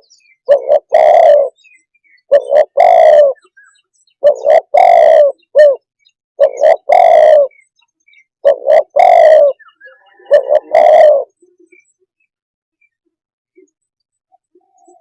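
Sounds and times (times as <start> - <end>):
dove cooing: 0.0 - 7.7, 8.4 - 11.9.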